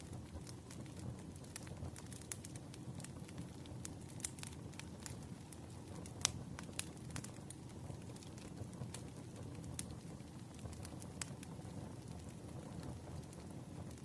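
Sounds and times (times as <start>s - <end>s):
firewood crackling and popping: 0.0s - 14.0s
low rumble of flames: 0.0s - 14.0s.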